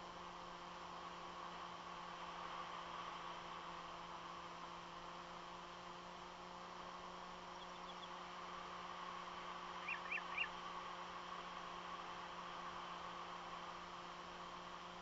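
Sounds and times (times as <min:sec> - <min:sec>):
camera audio hiss and hum: 0:00.0 - 0:15.0
bird chirping: 0:07.6 - 0:08.2, 0:09.8 - 0:10.6.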